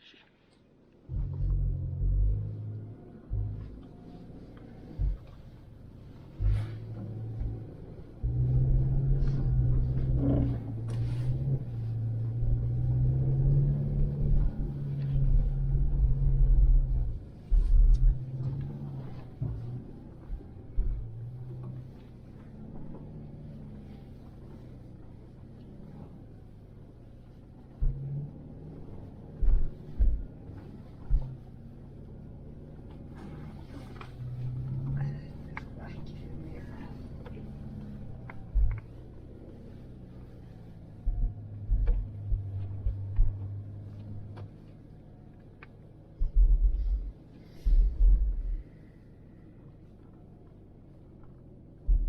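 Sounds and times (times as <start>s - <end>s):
vehicle engine running: 1.0s - 52.0s
heavy low thumps: 29.3s - 31.5s, 38.3s - 39.1s, 41.0s - 44.3s, 46.2s - 48.7s.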